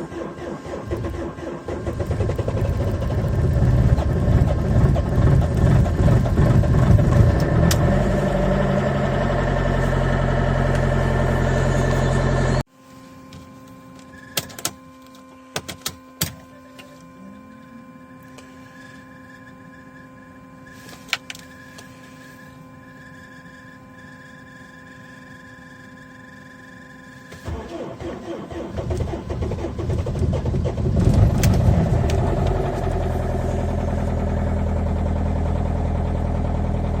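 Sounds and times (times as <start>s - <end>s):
diesel engine idling: 0.0s - 12.6s, 27.5s - 37.0s
faint steady whine: 8.0s - 37.0s.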